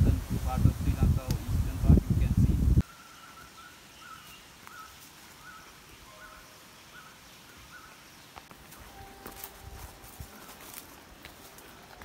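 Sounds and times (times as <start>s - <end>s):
lower bird call: 2.8s - 9.2s.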